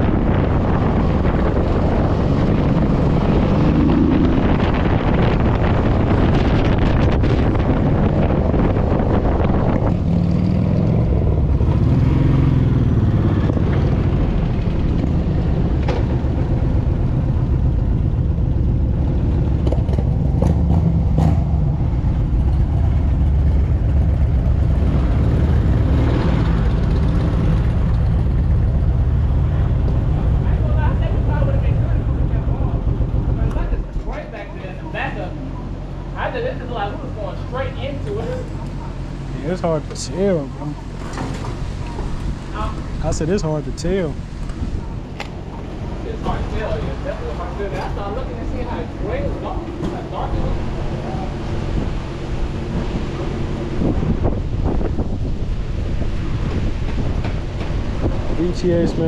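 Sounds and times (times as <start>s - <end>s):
motorcycle engine running: 0.0s - 34.0s
wind on microphone: 0.0s - 34.1s, 48.4s - 59.0s.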